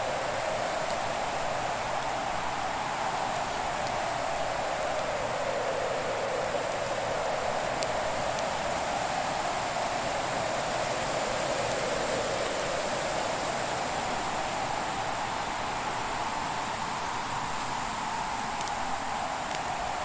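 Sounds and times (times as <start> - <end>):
burning wood crackles: 0.1 - 10.8, 16.2 - 20.0.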